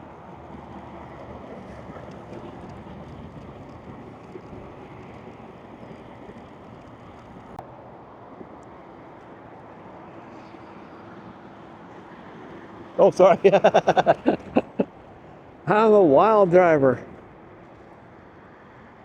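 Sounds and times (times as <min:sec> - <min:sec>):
tyres rumbling: 0:00.0 - 0:07.6, 0:13.0 - 0:14.9
wind buffeting microphone: 0:00.0 - 0:07.6, 0:12.4 - 0:19.0.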